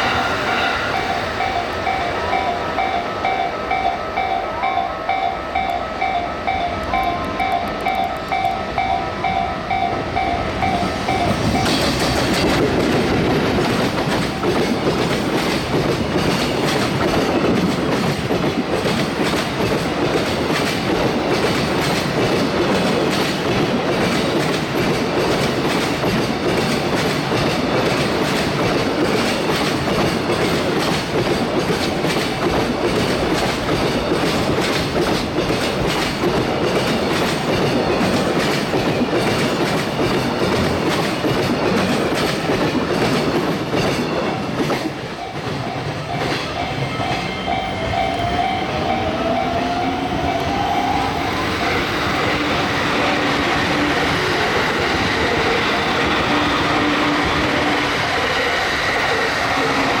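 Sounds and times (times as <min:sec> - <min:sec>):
train rumbling past: 0:00.0 - 1:00.0.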